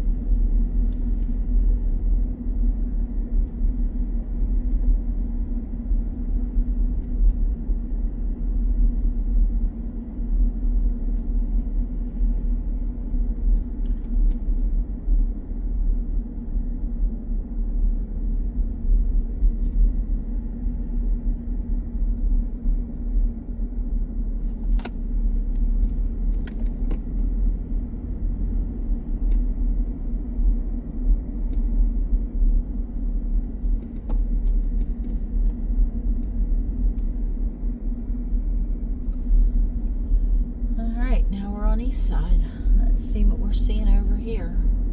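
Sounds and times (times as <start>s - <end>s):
car interior road rumble: 0.0s - 44.9s.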